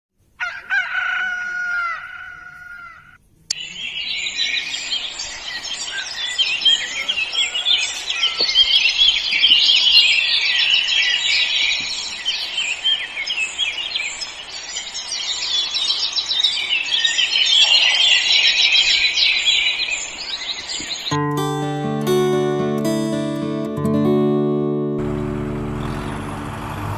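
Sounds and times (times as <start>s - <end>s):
birds chirping in chorus: 1.8s - 21.2s, 25.6s - 26.9s.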